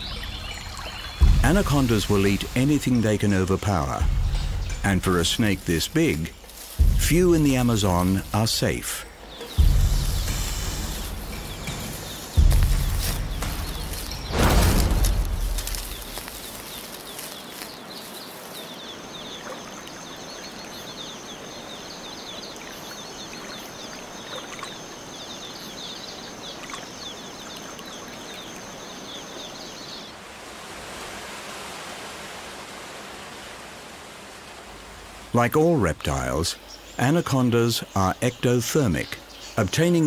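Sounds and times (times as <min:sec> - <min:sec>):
soft hiss of running water: 0:00.0 - 0:40.0
steady high insect buzz: 0:04.1 - 0:35.3
rapid high chirping calls: 0:06.1 - 0:14.4
loud rush of noise: 0:09.6 - 0:17.3.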